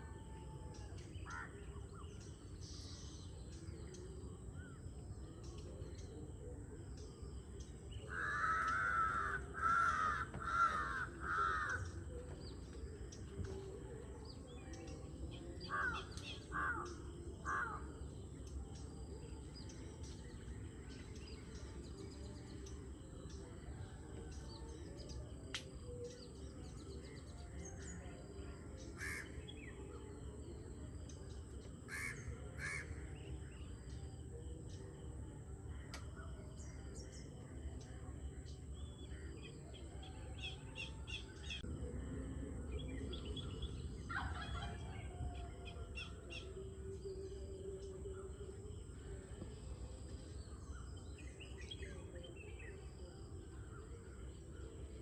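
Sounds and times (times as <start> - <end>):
low steady background: 0.0 - 55.0
crow cawing: 8.1 - 11.9.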